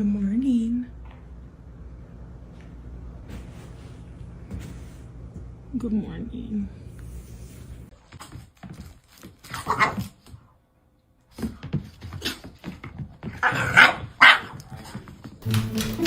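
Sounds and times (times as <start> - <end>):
dog barking: 13.4 - 14.6.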